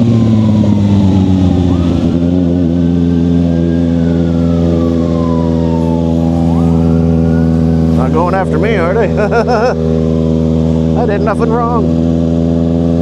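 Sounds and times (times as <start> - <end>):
siren wailing: 0.0 - 9.4
motorcycle engine running: 0.0 - 13.0.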